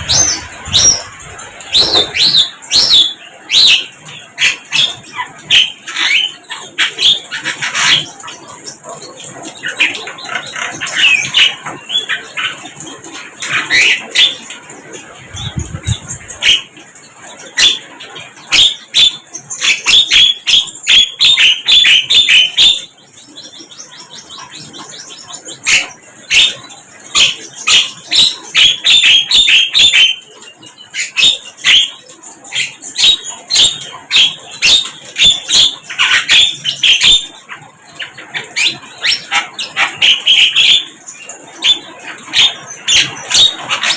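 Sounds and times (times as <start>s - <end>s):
flycatcher singing: 0.0s - 3.2s.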